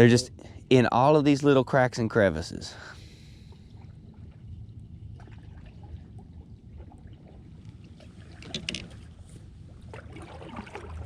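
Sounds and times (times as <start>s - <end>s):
low rumble: 0.0s - 10.3s
water lapping around kayak: 2.8s - 11.0s
small clicks and knocks: 8.4s - 9.0s.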